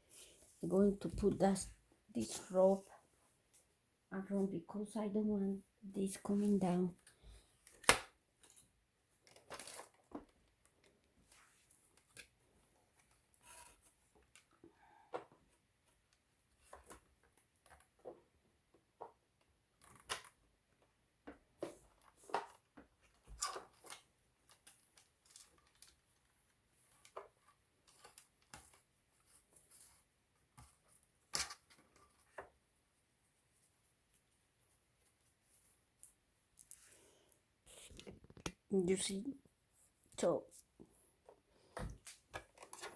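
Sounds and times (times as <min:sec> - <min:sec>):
hands handling cables and parts: 0:40.8 - 0:42.9.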